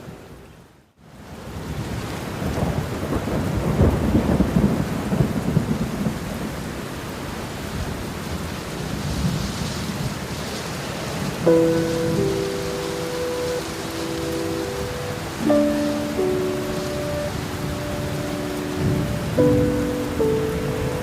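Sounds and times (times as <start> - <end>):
rain falling: 0.0 - 21.0
thunder rumbling: 2.3 - 6.8, 11.2 - 21.0.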